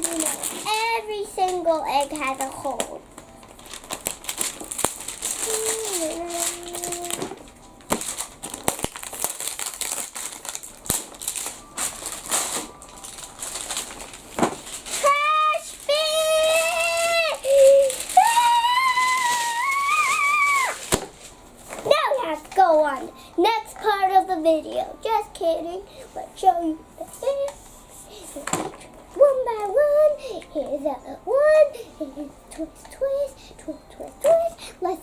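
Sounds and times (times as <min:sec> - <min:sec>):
wrapping crinkling and tearing: 0:00.0 - 0:22.8
child making high notes: 0:18.3 - 0:20.8.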